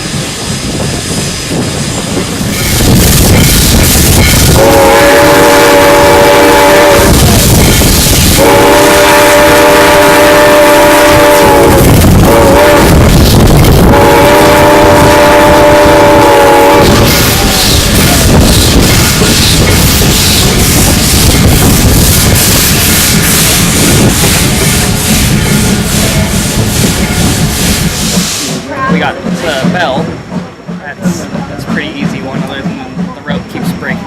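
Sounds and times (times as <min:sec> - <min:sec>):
steam locomotive running: 0:00.0 - 0:34.0
steam locomotive whistle: 0:04.4 - 0:20.5.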